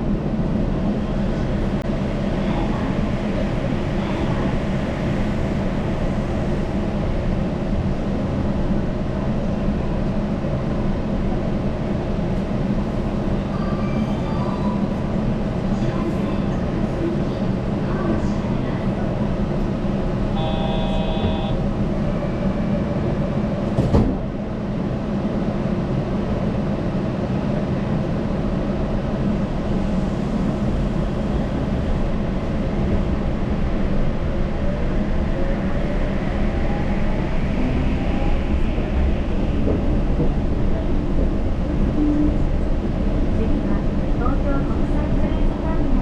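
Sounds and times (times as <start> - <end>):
train running rumble: 0.0 - 46.0
brief tone: 20.4 - 21.6.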